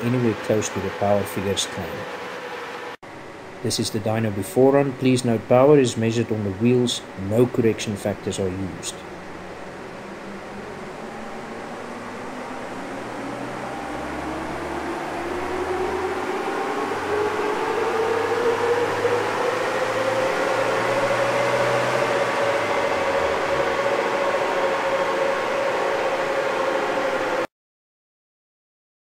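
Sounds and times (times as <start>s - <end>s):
diesel engine revving under load: 0.0s - 3.0s, 8.1s - 27.5s.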